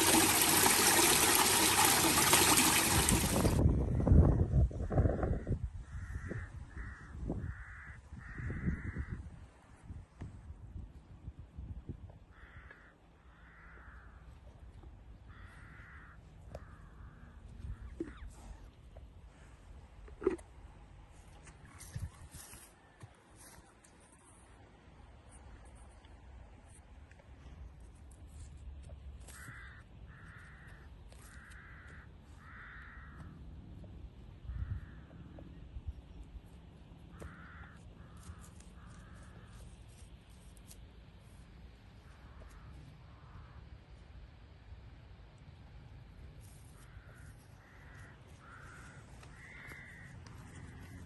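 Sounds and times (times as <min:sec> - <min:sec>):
bird giving raspy calls: 0:31.3 - 0:33.2, 0:37.1 - 0:39.5, 0:46.8 - 0:51.0.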